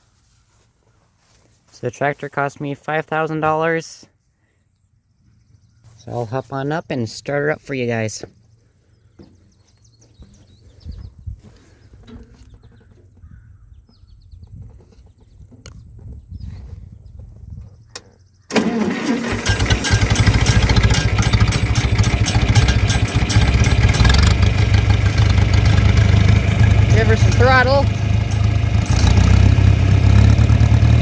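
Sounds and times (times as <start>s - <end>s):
tractor engine starting and running: 18.5s - 31.0s.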